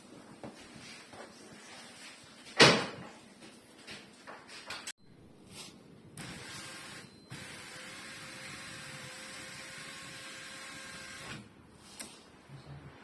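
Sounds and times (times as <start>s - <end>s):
electric motor whirring: 6.4s - 11.4s.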